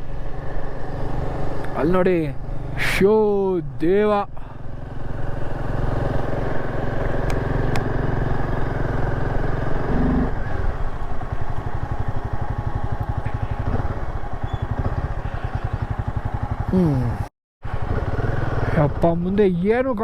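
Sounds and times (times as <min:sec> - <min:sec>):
motorcycle engine running: 0:00.0 - 0:02.8, 0:04.4 - 0:19.6
short steady tone: 0:09.9 - 0:10.4.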